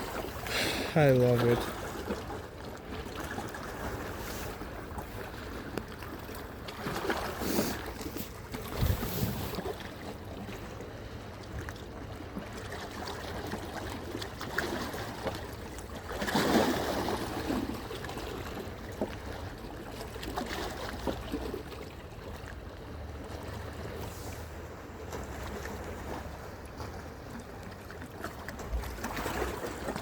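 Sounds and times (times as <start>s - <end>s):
sea waves washing ashore: 0.0s - 30.0s
wind rumbling on microphone: 8.6s - 9.8s.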